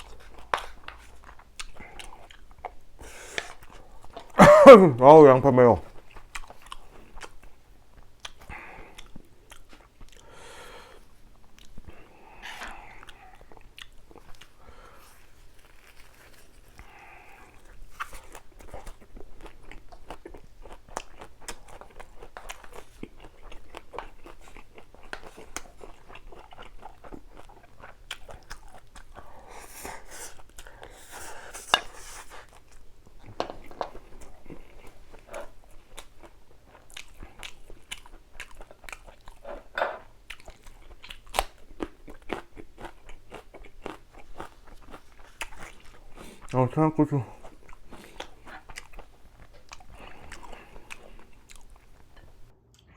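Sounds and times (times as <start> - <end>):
person crunching raw vegetables: 8.0 - 29.5, 32.4 - 52.9.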